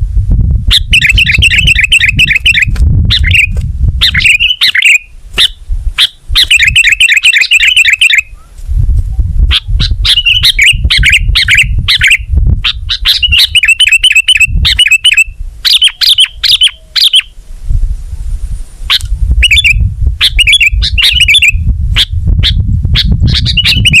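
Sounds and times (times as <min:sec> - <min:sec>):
low rumble: 0:00.0 - 0:04.1, 0:08.6 - 0:12.7
bulbul singing chattering notes: 0:00.8 - 0:05.6, 0:06.4 - 0:08.3, 0:13.0 - 0:17.3, 0:19.4 - 0:21.6.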